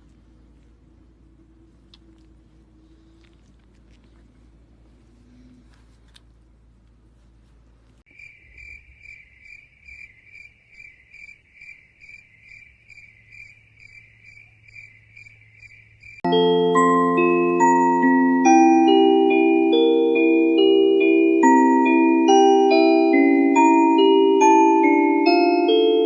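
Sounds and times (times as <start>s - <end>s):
faint low background noise: 0.0s - 26.0s
cricket chirping: 8.1s - 16.3s.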